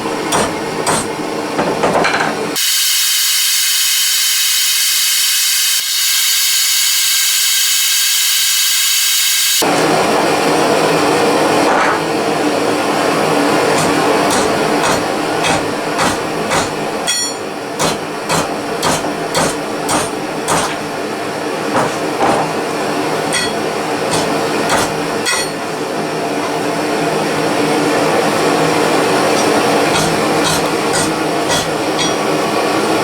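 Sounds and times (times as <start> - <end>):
hammer striking hot metal: 0.3 - 1.2, 13.7 - 20.9, 23.2 - 25.7, 29.3 - 32.4
blow lamp roaring: 2.6 - 15.4.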